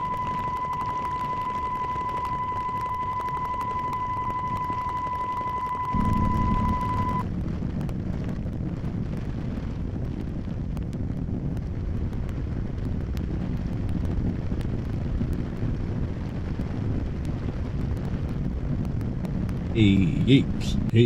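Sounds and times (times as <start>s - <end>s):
high-pitched beep: 0.0s - 7.2s
wind noise on microphone: 0.0s - 19.8s.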